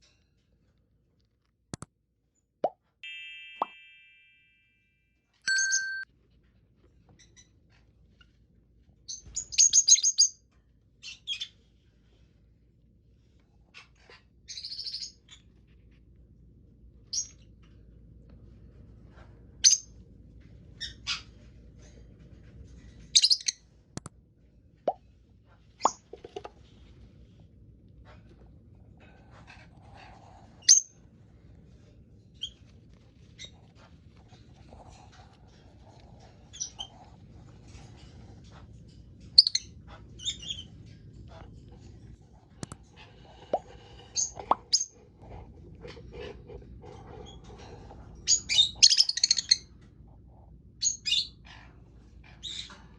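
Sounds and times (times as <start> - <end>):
faint low hum: 3.5 - 52.9
lovebirds chirping: 44.1 - 44.9, 48.2 - 49.6.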